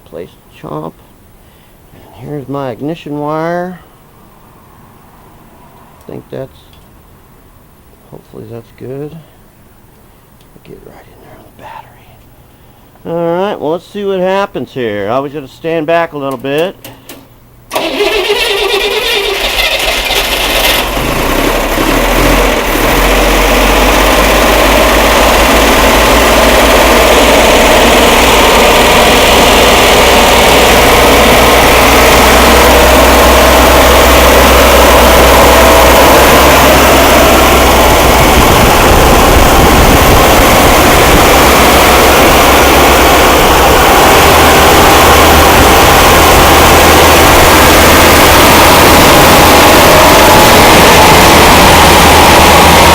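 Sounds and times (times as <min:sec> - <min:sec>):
car engine starting and running: 0:17.7 - 0:52.9.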